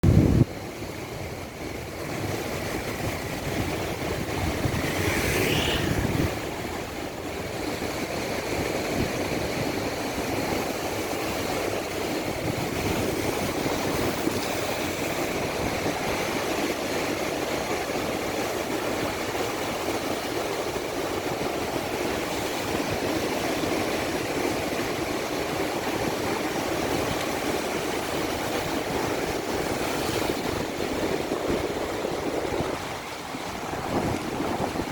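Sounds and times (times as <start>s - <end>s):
heavy waves breaking: 0.0s - 34.9s
brief rising high sound: 4.9s - 6.5s.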